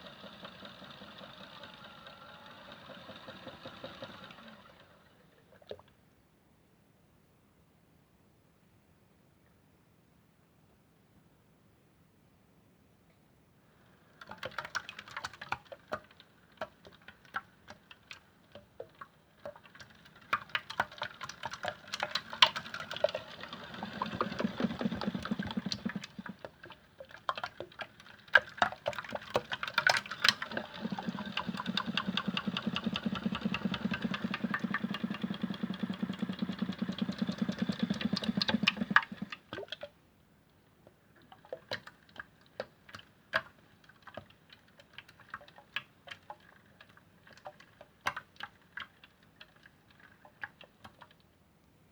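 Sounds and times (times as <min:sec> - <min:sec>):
toy washing machine motor humming: 0:00.0 - 0:05.4, 0:19.6 - 0:26.9, 0:27.9 - 0:39.4.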